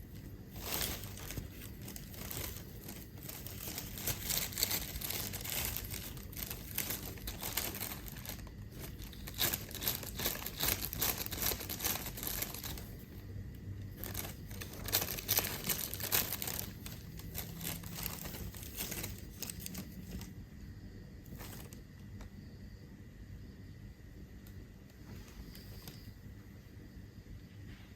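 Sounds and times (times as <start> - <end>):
plastic bag crinkling: 0.0 - 13.3, 13.9 - 20.4, 21.3 - 21.8.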